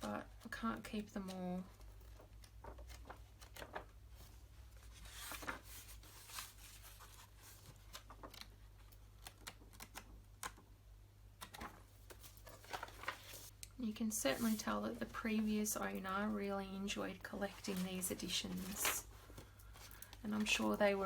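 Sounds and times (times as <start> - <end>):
paper rustling and tapping: 0.4 - 4.0, 11.4 - 13.5
pages turning: 1.7 - 10.6, 11.4 - 13.6, 14.3 - 15.7, 17.4 - 21.0.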